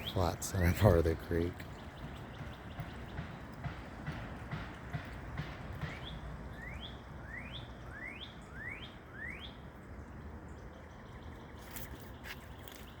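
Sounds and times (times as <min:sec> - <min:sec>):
outdoor background noise: 0:00.0 - 0:13.0
songbird whistled notes: 0:05.8 - 0:09.6.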